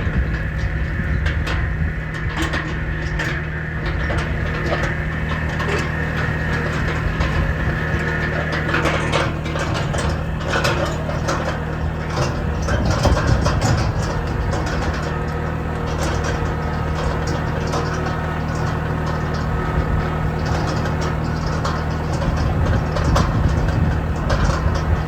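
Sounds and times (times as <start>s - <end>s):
tractor engine idling: 0.0s - 25.0s.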